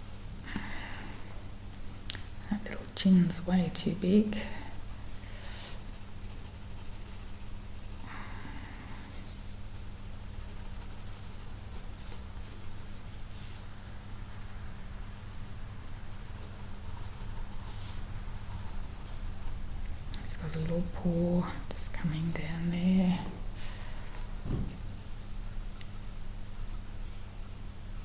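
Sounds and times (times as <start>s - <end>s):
low steady hum: 0.0s - 28.0s
pencil scratching on paper: 5.8s - 9.1s, 9.9s - 20.9s, 22.0s - 22.9s, 24.6s - 27.5s.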